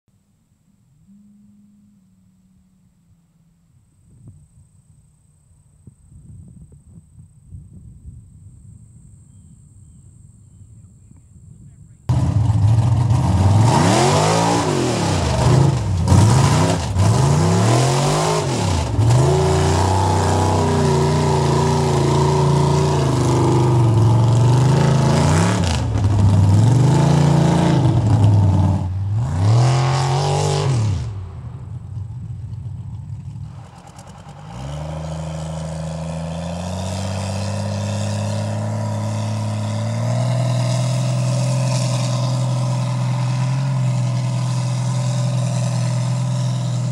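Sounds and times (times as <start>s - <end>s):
truck engine revving: 12.1s - 46.9s.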